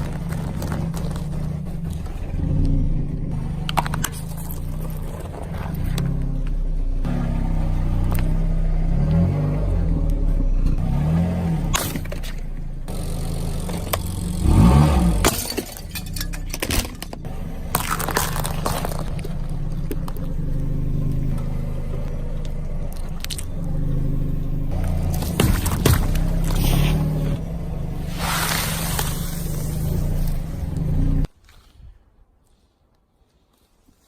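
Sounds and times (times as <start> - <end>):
vehicle engine running: 0.0 - 31.3
objects crushed and breaking: 15.1 - 20.2, 24.8 - 27.4.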